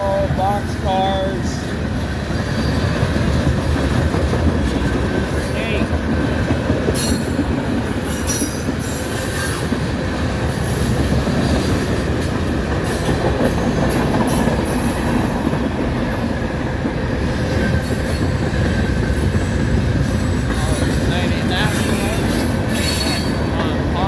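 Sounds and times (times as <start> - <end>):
steel wheels rumbling on rails: 0.0 - 24.0
high-pitched wheel squeals: 22.4 - 23.4.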